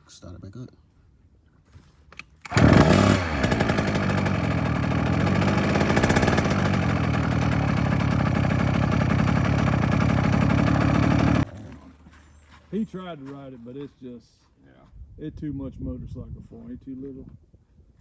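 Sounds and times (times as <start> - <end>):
two-stroke dirt bike engine: 2.5 - 11.5.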